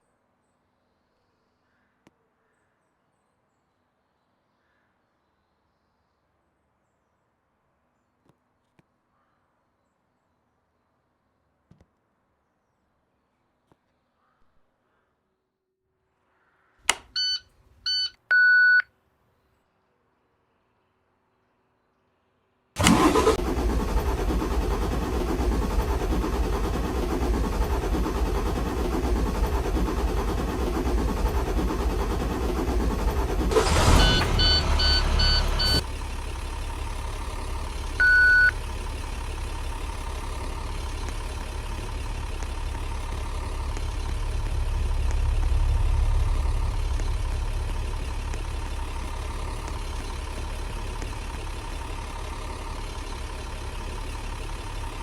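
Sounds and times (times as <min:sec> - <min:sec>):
diesel bus engine idling: 0:22.8 - 0:55.0
short electronic beeps: 0:33.5 - 0:35.8, 0:38.0 - 0:38.6.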